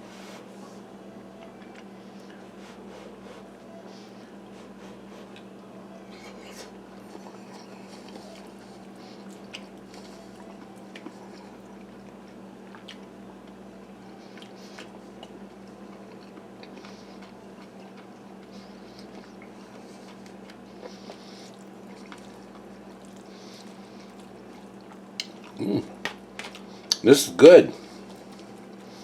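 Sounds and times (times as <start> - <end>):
steady low hum: 0.0 - 29.0
person chewing food: 4.0 - 27.0, 27.8 - 29.0.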